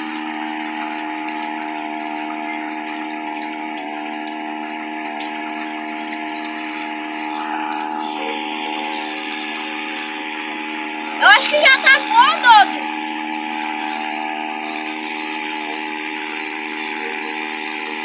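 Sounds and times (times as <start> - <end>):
boat engine running: 0.0 - 18.0
water hissing: 5.2 - 11.8.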